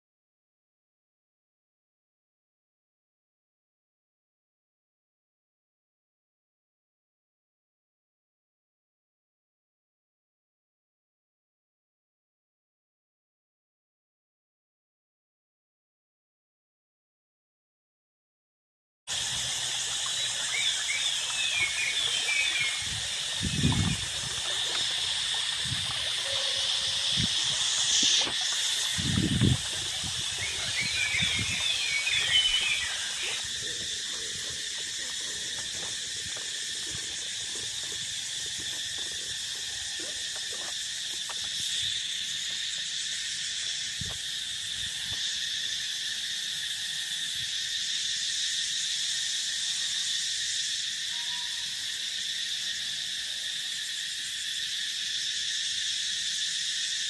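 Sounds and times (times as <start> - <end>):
insects and frogs droning: 19.1 - 57.0
quick chirping calls: 20.1 - 36.1.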